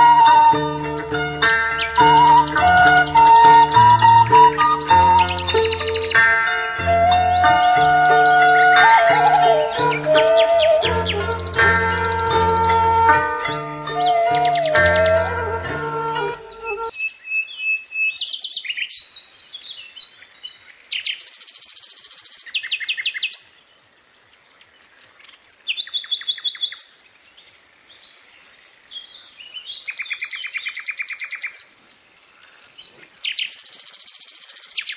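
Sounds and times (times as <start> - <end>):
birds chirping: 0.0 - 23.6
fast pulsed bird trills: 1.3 - 12.9.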